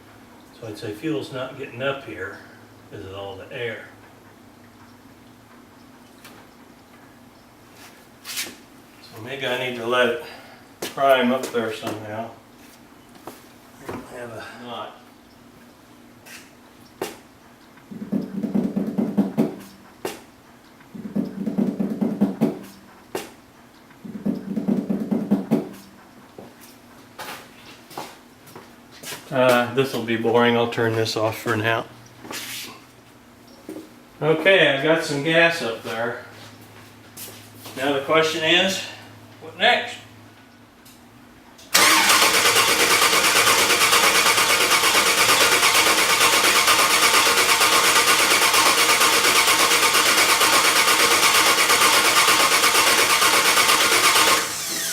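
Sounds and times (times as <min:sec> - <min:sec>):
engine cranking by starter motor: 0:41.7 - 0:54.9.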